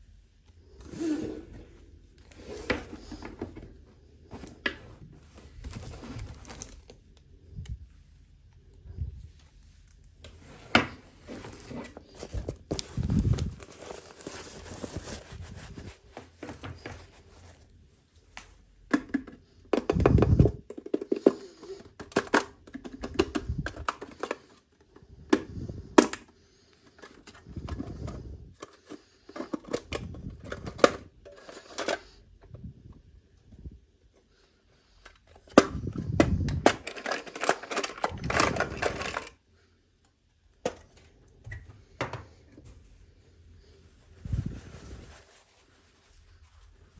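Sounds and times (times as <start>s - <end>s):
crinkly packaging rustling: 2.1s - 7.3s, 9.5s - 18.6s, 34.8s - 39.4s
plastic pieces clicking and knocking: 18.9s - 24.6s, 35.4s - 39.4s.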